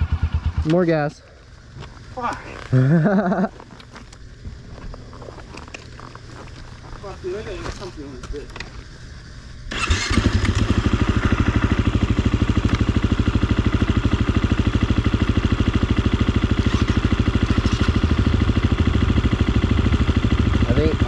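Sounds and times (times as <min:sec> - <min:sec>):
dirt bike engine idling: 0:00.0 - 0:21.0.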